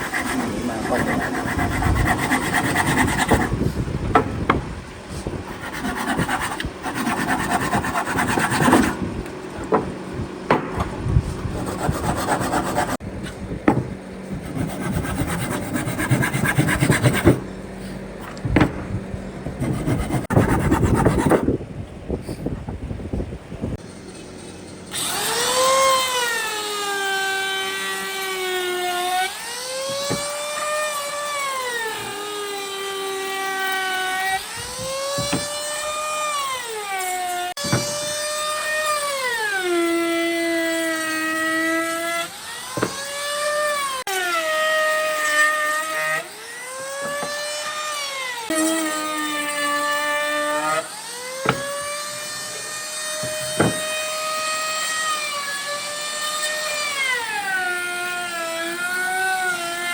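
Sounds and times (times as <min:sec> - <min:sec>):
power tool motor whining: 0:24.9 - 0:59.9.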